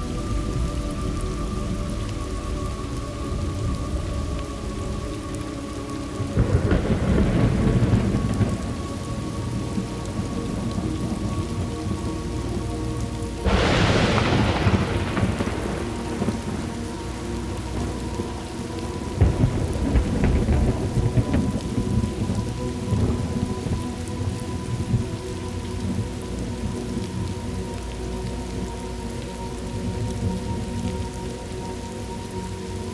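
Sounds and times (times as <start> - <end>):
thunder rumbling: 0.0 - 32.4
steady rain: 0.0 - 32.9
sharp thunderclap: 6.4 - 8.8, 13.4 - 17.0, 19.2 - 22.4.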